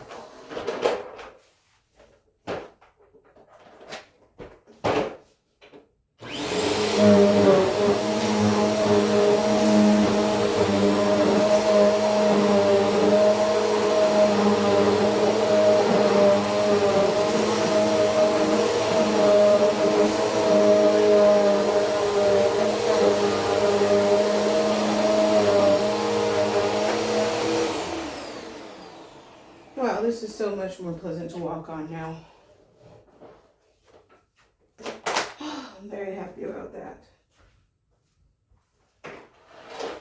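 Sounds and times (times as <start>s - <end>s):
vacuum cleaner running: 6.2s - 31.8s.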